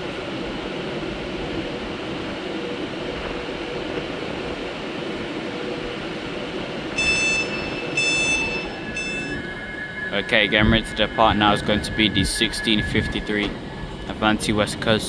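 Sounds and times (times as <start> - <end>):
electric train humming: 0.0 - 15.0
high-pitched tone bursts: 7.0 - 14.0.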